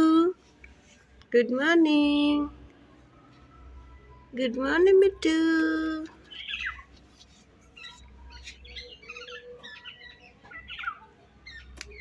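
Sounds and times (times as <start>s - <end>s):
parrot chirping: 6.2s - 12.0s.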